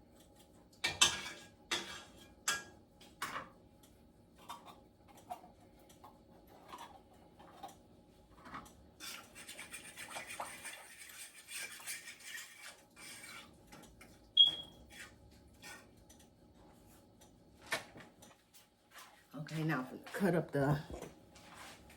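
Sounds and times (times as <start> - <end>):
utensil scraping and rubbing: 9.0 - 13.6.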